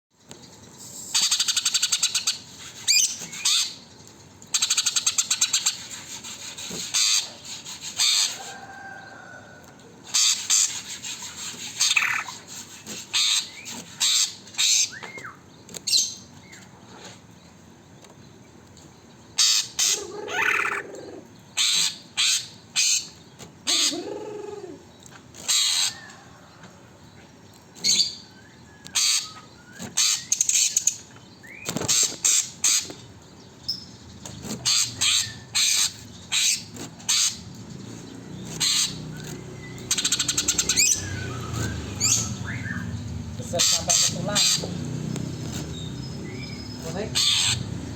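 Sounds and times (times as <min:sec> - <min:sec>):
songbird buzzy chattering song: 0:00.2 - 0:08.5, 0:10.1 - 0:16.7, 0:27.0 - 0:47.9
sparrow-like chirps: 0:10.2 - 0:16.6, 0:27.8 - 0:47.9
bird whistled slurs: 0:39.8 - 0:42.9.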